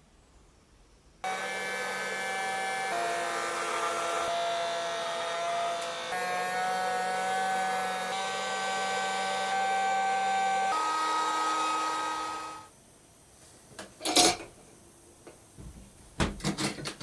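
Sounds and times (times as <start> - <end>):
electric motor whining: 1.2 - 12.7.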